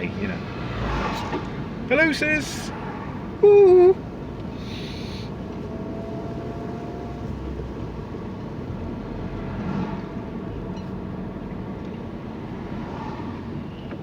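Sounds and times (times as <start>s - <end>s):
car cabin road and engine noise: 0.0s - 14.0s
faint thin tone: 4.6s - 7.4s.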